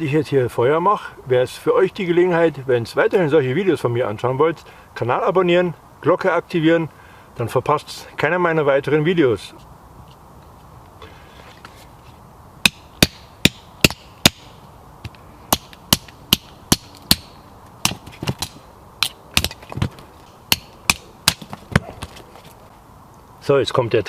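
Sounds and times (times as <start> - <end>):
knocks striking wood: 12.6 - 22.2.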